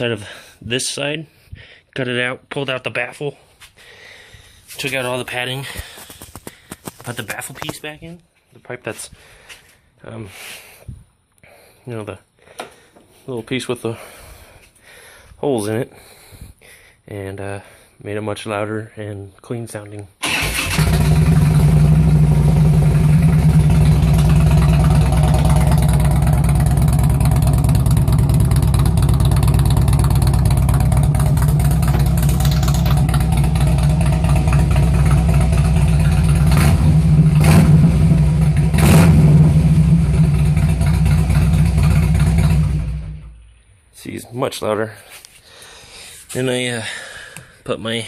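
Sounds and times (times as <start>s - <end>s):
motorcycle engine idling loudly: 20.8s - 43.2s
motorcycle throttle blips: 20.9s - 43.4s.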